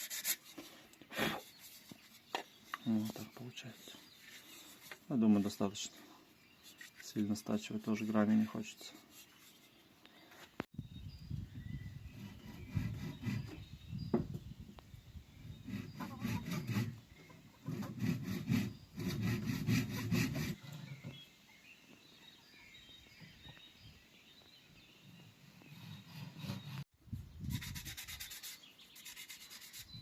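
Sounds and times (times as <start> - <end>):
sandpaper rubbing on bamboo: 0.0 - 0.7, 12.2 - 13.6, 15.6 - 17.0, 17.6 - 20.6, 27.4 - 30.0.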